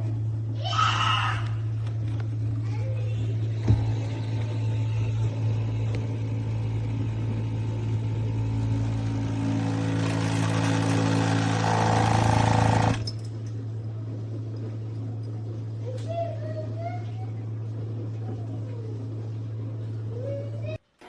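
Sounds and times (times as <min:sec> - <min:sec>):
espresso machine pump humming: 0:03.4 - 0:13.0.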